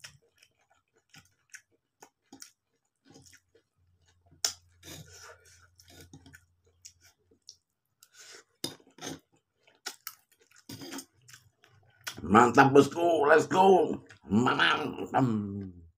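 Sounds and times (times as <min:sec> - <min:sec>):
wet chewing and lip smacking: 0:00.0 - 0:12.2.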